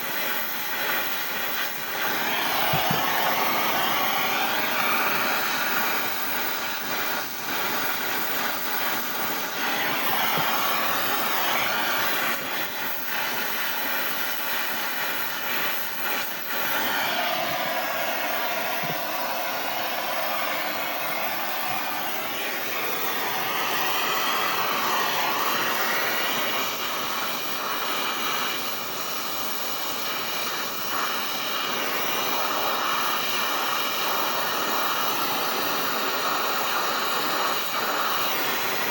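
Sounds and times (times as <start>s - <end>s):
brazing torch flame hissing: 0.0s - 38.9s.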